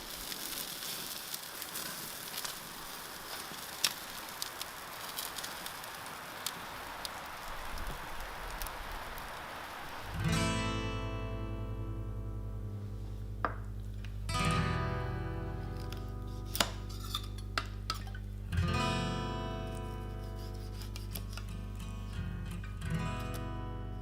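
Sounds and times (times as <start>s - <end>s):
crackling pops: 0.0s - 10.3s, 13.4s - 14.6s, 15.3s - 18.3s
barbecue grill sizzling: 0.0s - 22.4s
acoustic guitar music: 10.1s - 24.0s.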